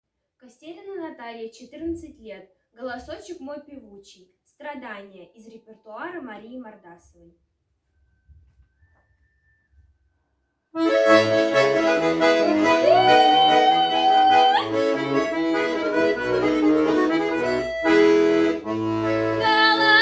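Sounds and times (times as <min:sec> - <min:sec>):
accordion playing chords: 0:10.8 - 0:20.0.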